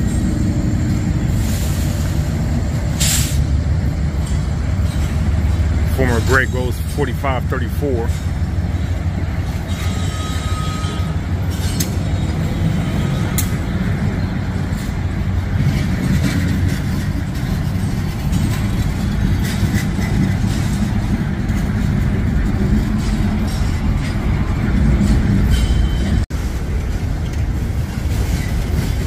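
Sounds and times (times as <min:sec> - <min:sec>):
freight train rumbling past: 0:00.0 - 0:29.0
wheels clicking and clanking: 0:00.0 - 0:29.0
faint wheel squeal: 0:09.7 - 0:13.4.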